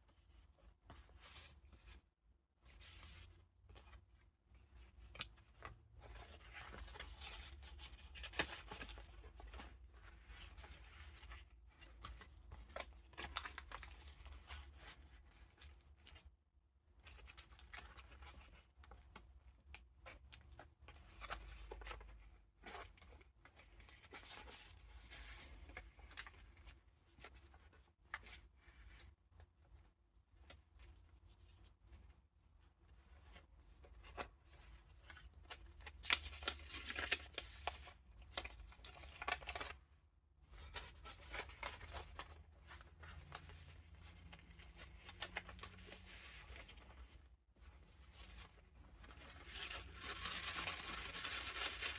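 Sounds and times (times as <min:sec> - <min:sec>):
paper pages rustling and crinkling: 0:00.1 - 0:16.3, 0:17.0 - 0:29.8, 0:32.8 - 0:51.9.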